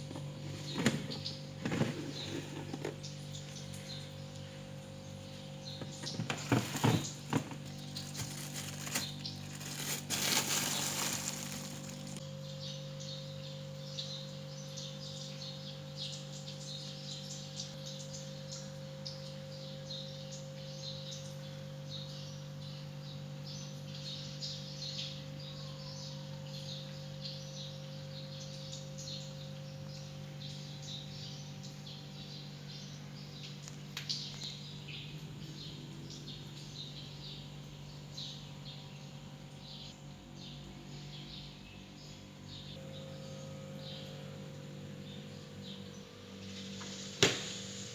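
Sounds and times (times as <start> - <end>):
birds chirping: 0.0 - 13.2
steady low hum: 0.0 - 20.8, 27.8 - 47.9.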